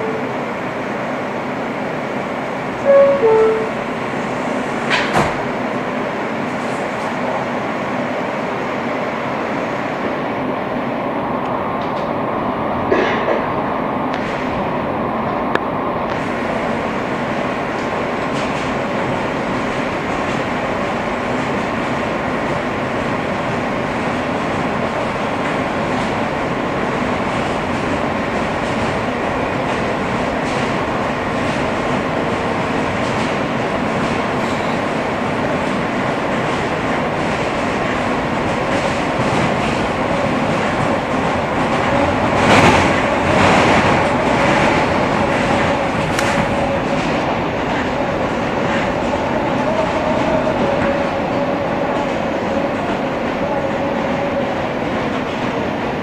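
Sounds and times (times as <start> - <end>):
wheels rumbling on rail: 0.0 - 56.0
train clatter: 4.6 - 5.7, 12.8 - 14.6, 15.5 - 56.0
rail-joint clicks: 4.8 - 5.4, 12.9 - 13.5, 35.6 - 49.2.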